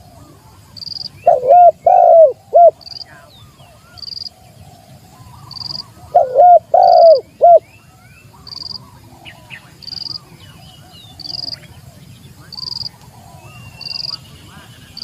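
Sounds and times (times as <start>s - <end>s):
dove cooing: 0.0s - 2.9s, 4.2s - 7.6s
faint chirps of other birds: 0.0s - 15.0s.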